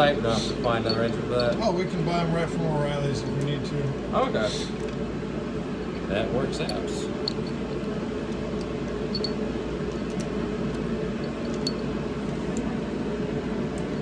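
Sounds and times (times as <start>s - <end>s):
fan whirring: 0.0s - 14.0s
metal parts clinking: 0.8s - 1.7s, 6.6s - 8.0s, 11.2s - 12.5s.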